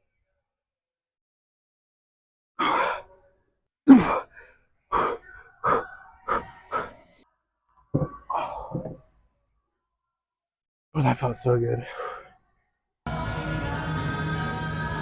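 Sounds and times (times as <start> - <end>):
man grunting: 3.9 - 4.3.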